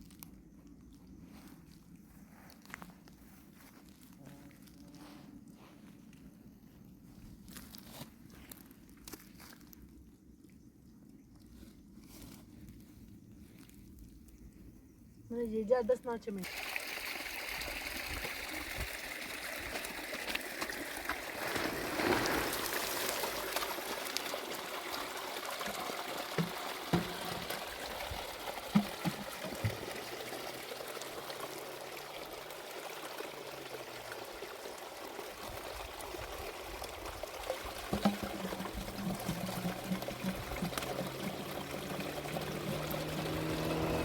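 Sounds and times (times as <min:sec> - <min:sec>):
water rushing: 0:16.4 - 0:44.0.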